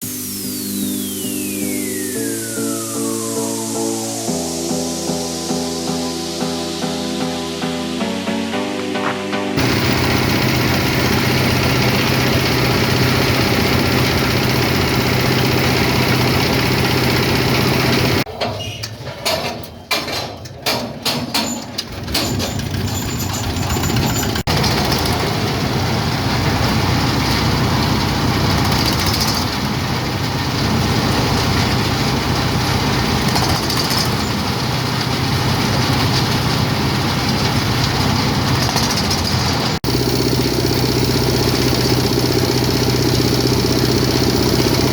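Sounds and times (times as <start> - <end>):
grinding machine engine hum: 9.6 - 18.3, 21.9 - 44.9.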